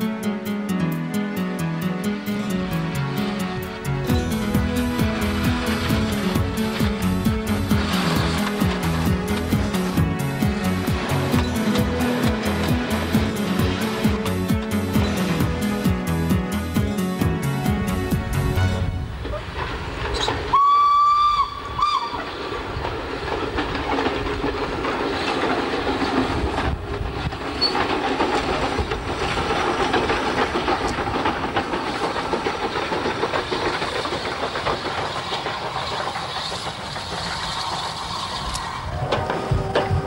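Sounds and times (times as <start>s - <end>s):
train wheels rumbling on rails: 0.0s - 40.0s
train whistle: 20.5s - 22.3s.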